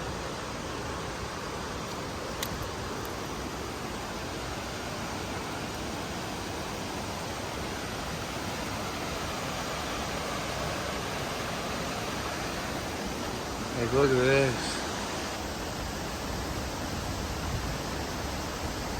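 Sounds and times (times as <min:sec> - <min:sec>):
water rushing in stream: 0:00.0 - 0:18.9
small click: 0:01.9 - 0:03.2.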